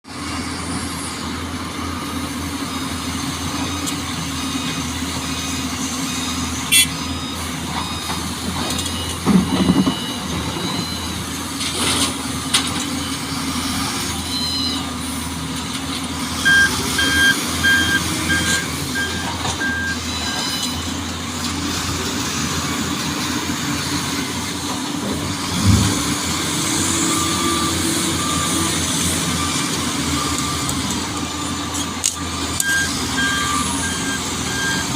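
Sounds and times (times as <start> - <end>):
heavy truck engines running: 0.0 - 34.9
reversing alarm beeping: 4.4 - 12.1, 13.0 - 15.0, 16.4 - 21.1, 26.6 - 34.9.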